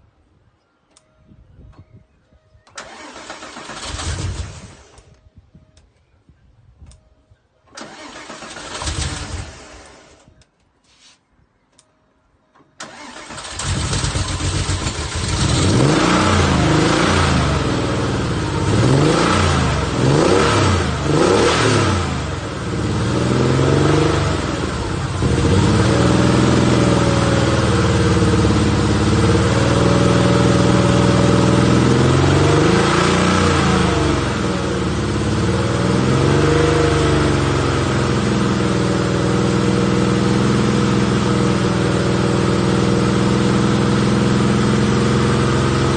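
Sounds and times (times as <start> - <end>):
engine starting: 2.7 - 5.1, 7.7 - 10.4, 12.8 - 15.8
engine revving: 7.8 - 10.2, 12.8 - 45.9.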